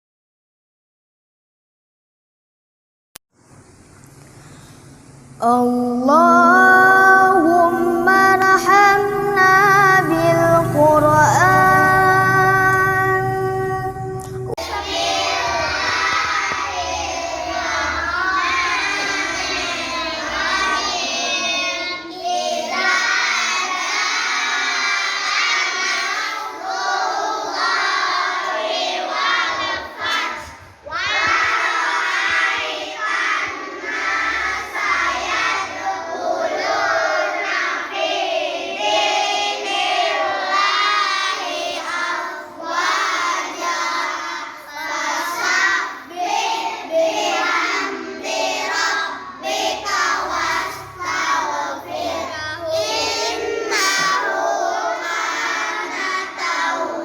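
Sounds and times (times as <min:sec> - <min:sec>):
children chanting in unison: 0:14.6 - 0:57.0.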